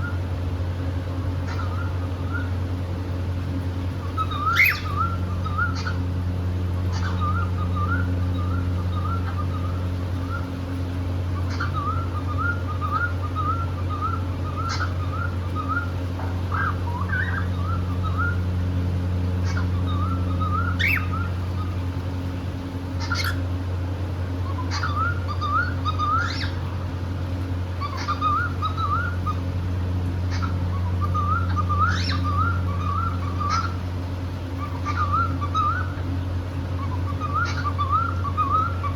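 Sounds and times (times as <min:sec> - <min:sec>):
steady low hum: 0:00.0 - 0:38.9
cockatiel whistling: 0:01.4 - 0:02.5, 0:04.0 - 0:06.0, 0:06.9 - 0:10.5, 0:11.4 - 0:15.9, 0:16.5 - 0:18.4, 0:19.4 - 0:21.8, 0:23.0 - 0:23.4, 0:24.4 - 0:26.6, 0:27.8 - 0:29.4, 0:30.3 - 0:33.8, 0:34.6 - 0:36.0, 0:36.8 - 0:38.9.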